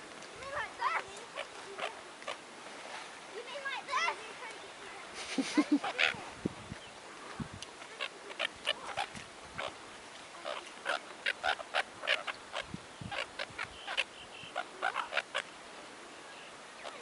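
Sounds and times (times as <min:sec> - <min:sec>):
gulls squawking: 0:05.4 - 0:06.3, 0:10.4 - 0:15.5.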